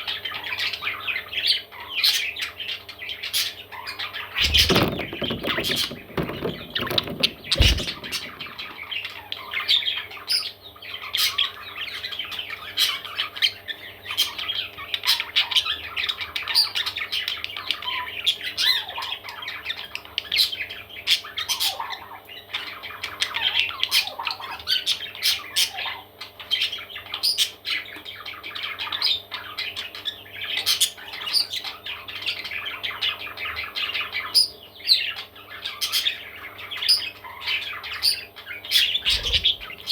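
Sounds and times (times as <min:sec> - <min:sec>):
parrot chicks squawking: 0:38.7 - 0:39.9.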